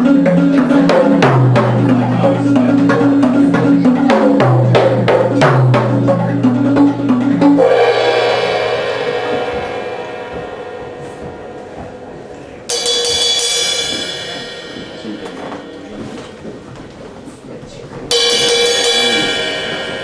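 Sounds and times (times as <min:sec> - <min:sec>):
low pitched bass line: 0:00.0 - 0:16.8
drum and wood-block strikes: 0:00.0 - 0:17.2, 0:18.1 - 0:20.0
sustained metallic ring: 0:07.5 - 0:16.6.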